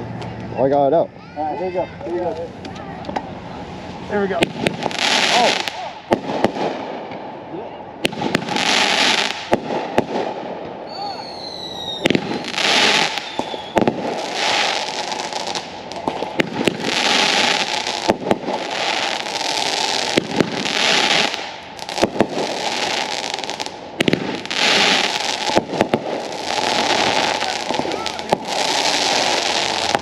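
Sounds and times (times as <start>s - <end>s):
fireworks pops and cracks: 2.1s - 3.3s, 4.2s - 7.2s, 8.0s - 30.0s
fireworks hissing rush: 3.2s - 7.1s, 8.0s - 30.0s.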